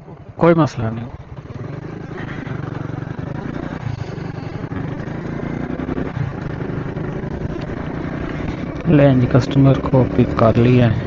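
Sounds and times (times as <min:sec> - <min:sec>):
motorcycle engine puttering: 0:00.0 - 0:11.0.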